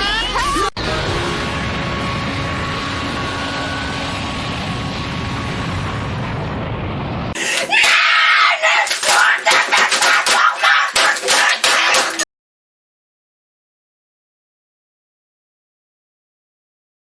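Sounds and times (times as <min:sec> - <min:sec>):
noisy rumble: 0:00.0 - 0:07.8
rapid sharp hits: 0:00.8 - 0:12.2
boy screaming: 0:07.4 - 0:12.2.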